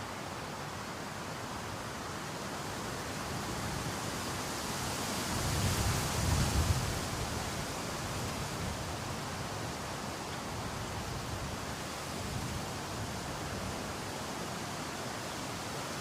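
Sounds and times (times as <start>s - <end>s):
heavy rain: 0.0s - 16.0s
rushing floodwater: 0.0s - 16.0s.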